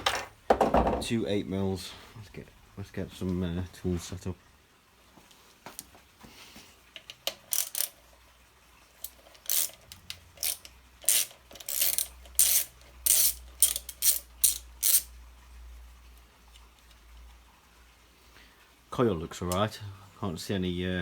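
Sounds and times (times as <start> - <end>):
ratchet wrench clicking: 7.0 - 8.0, 9.0 - 15.1.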